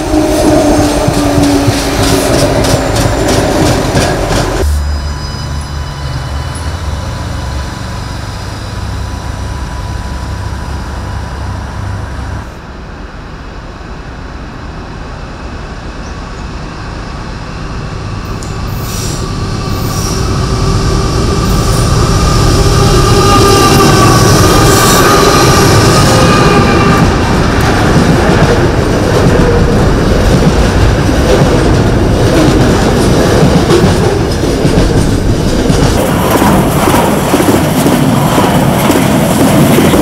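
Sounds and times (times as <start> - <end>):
diesel locomotive approaching: 0.0 - 40.0
railcar wheel and rail noise: 0.0 - 40.0
squealing tone: 4.6 - 12.4.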